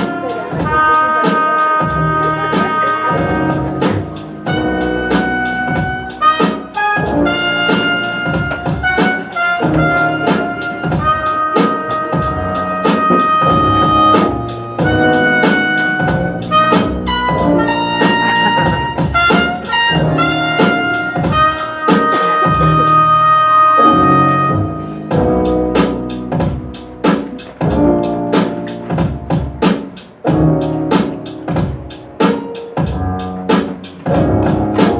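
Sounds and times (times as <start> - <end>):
held brass notes: 0.0 - 28.8
steady drum beat: 0.0 - 34.9.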